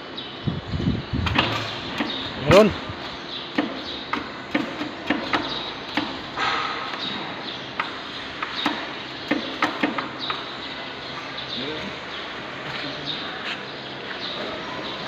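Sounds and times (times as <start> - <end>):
sharp knocks and taps: 7.8 - 10.4.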